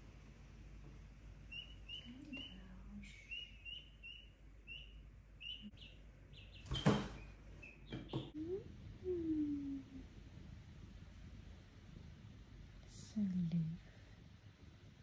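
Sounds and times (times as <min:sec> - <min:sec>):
small bird chirping: 0:01.4 - 0:09.8.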